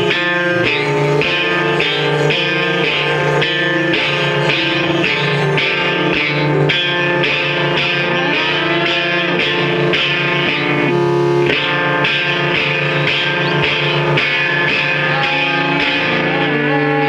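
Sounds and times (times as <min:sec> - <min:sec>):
distorted electric guitar rock music: 0:00.0 - 0:17.0.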